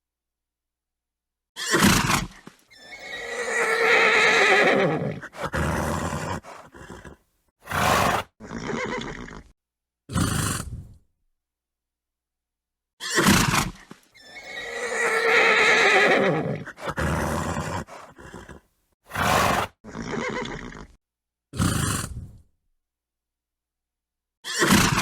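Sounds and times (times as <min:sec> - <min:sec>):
horse whinnying: 0:01.6 - 0:09.5, 0:13.0 - 0:21.0
horse snorting: 0:01.7 - 0:09.5, 0:10.1 - 0:11.0, 0:13.2 - 0:21.0, 0:21.6 - 0:22.5.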